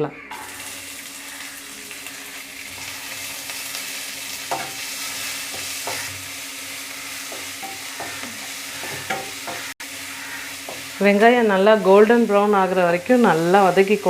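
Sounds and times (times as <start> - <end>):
spatula scraping a pan: 0.3 - 11.2
onions sizzling in a pan: 0.3 - 14.0.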